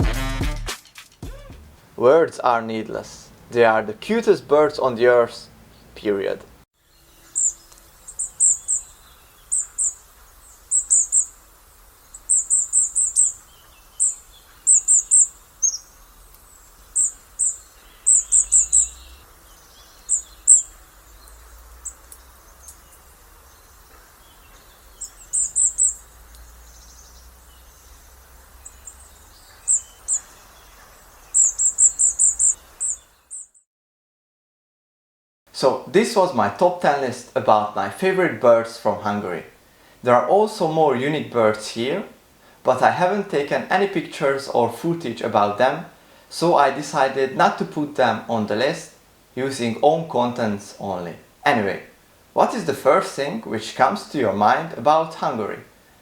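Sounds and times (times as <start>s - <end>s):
small birds high thin calls: 1.2s - 1.8s, 6.8s - 33.6s.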